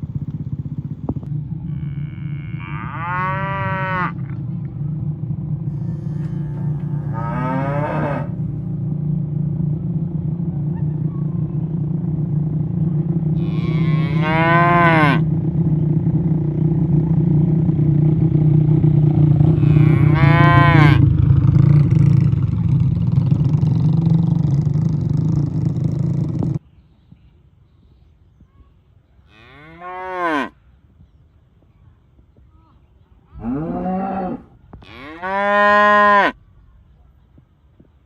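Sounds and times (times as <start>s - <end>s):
steady low drone: 0.0s - 26.6s
cattle mooing: 1.7s - 4.4s, 5.7s - 8.5s, 13.4s - 15.3s, 19.5s - 21.1s, 29.3s - 30.5s, 33.4s - 36.4s.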